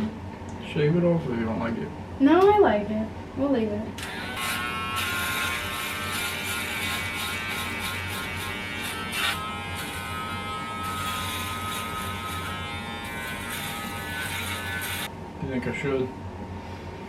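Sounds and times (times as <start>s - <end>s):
electric razor buzzing: 4.0s - 15.1s.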